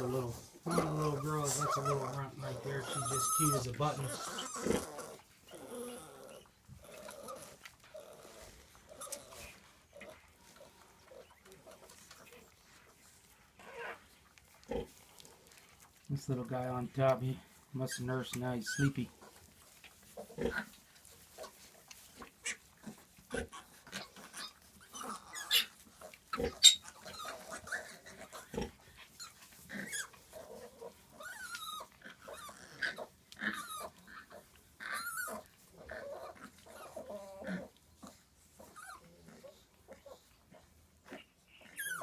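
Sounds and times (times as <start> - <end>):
piglets squealing: 0.0 - 10.2, 13.6 - 14.1, 17.8 - 19.1, 22.4 - 37.8, 38.6 - 40.2, 41.0 - 42.0.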